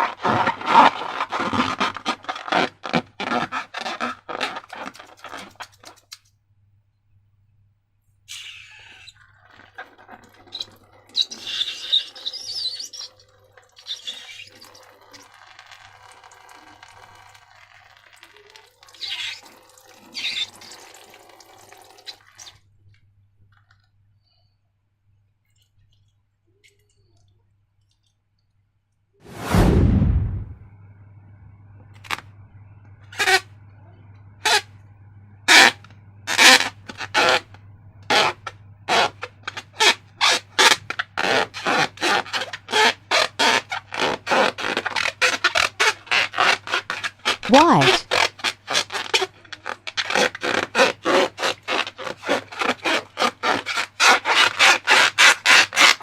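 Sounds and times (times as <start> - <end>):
thick liquid pouring and squelching: 0.0 - 6.1, 8.3 - 22.6.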